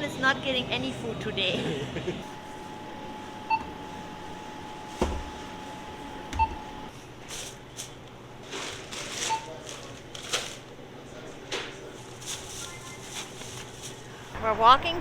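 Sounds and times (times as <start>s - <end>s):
checkout scanner beeps: 6.4s - 6.8s, 9.2s - 9.6s, 12.5s - 13.2s
crinkly rustling: 7.3s - 10.8s, 11.8s - 14.4s.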